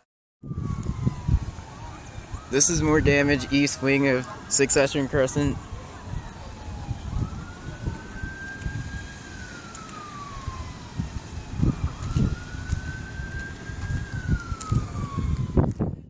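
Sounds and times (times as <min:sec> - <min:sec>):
emergency siren wailing: 0:00.4 - 0:16.0
wind rumbling on microphone: 0:00.4 - 0:16.0.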